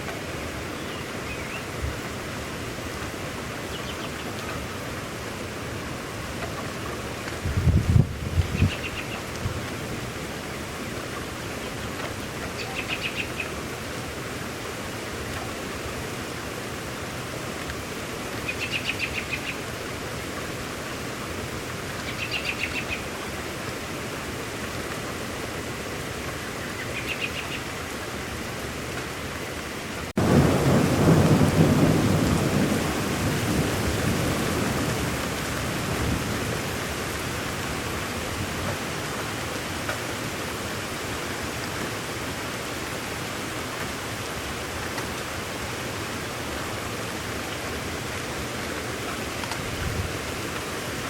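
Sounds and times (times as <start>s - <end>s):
rain hissing: 0.1s - 51.0s
thunder rumble: 7.4s - 9.0s, 30.2s - 35.0s.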